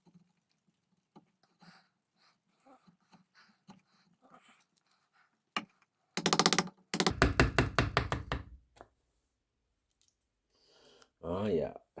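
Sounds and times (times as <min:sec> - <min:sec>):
fast sharp taps: 0:06.2 - 0:08.6
scratchy clicks on wood: 0:06.2 - 0:08.8.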